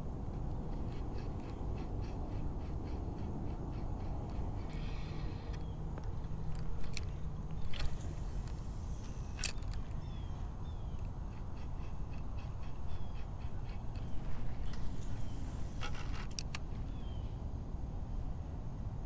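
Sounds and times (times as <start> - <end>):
high bird calls: 0.5 - 6.3, 9.0 - 15.6.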